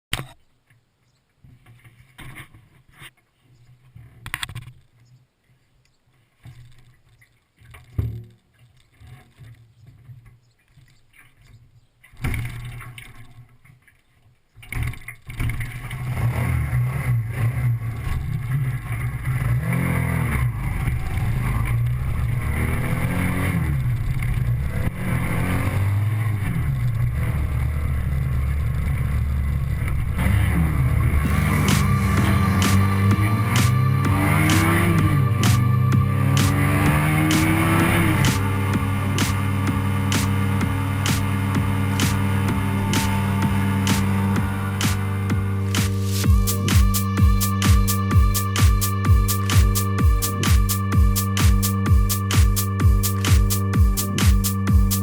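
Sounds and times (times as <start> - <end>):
motorcycle engine revving: 19.2 - 55.0
steady rushing noise: 30.0 - 55.0.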